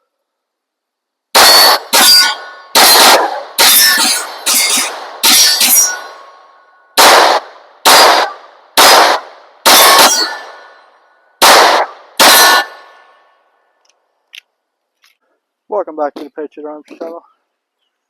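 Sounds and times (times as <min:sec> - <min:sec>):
pistol shots: 0:01.3 - 0:06.4, 0:07.0 - 0:13.2
ringing tone after shots: 0:01.4 - 0:07.2, 0:09.7 - 0:11.0, 0:11.6 - 0:13.2.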